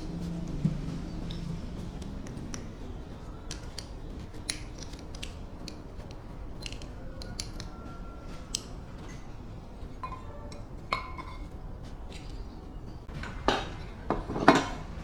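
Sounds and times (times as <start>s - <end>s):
light metallic clicks: 0.2s - 9.3s.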